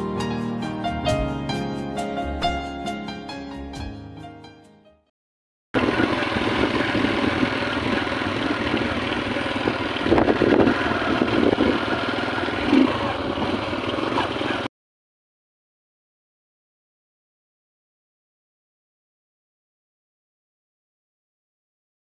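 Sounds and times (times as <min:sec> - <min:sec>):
piano tune: 0:00.0 - 0:05.0
motorcycle running on road: 0:05.8 - 0:14.7.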